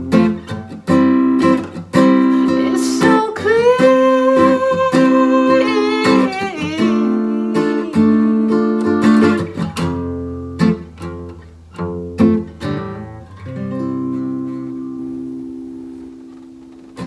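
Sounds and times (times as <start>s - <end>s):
acoustic guitar strumming chords: 0.0s - 17.0s
person singing: 2.2s - 9.6s.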